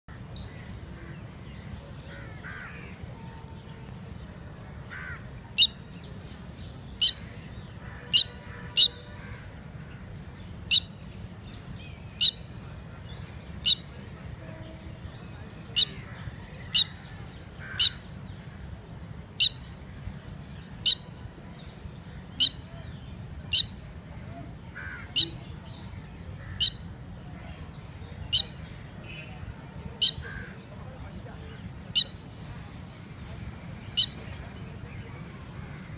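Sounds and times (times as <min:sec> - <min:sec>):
low background noise: 0:00.1 - 0:35.9
lapwing calling: 0:04.9 - 0:05.9, 0:07.0 - 0:09.4, 0:13.6 - 0:13.9, 0:15.7 - 0:18.1, 0:20.7 - 0:21.2, 0:23.5 - 0:23.9, 0:24.8 - 0:25.5, 0:26.4 - 0:27.0, 0:28.3 - 0:28.7, 0:29.9 - 0:30.6, 0:31.9 - 0:32.2, 0:33.9 - 0:34.2.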